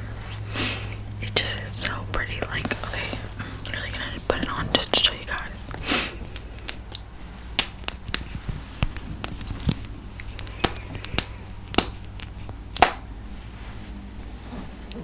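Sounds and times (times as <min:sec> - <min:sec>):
lip gloss tube clicks: 0:07.6 - 0:13.0
lips smacking: 0:07.9 - 0:12.4.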